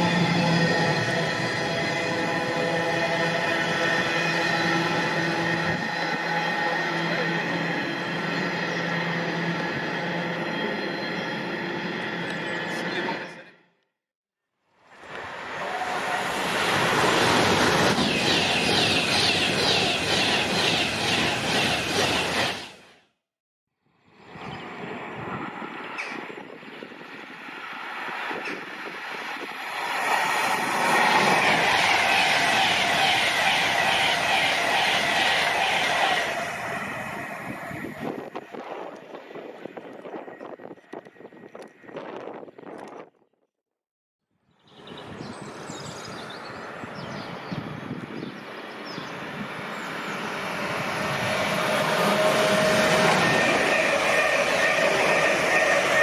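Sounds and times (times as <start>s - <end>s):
train wheels rushing on rail: 15.0s - 23.0s, 27.4s - 40.1s, 48.7s - 56.0s.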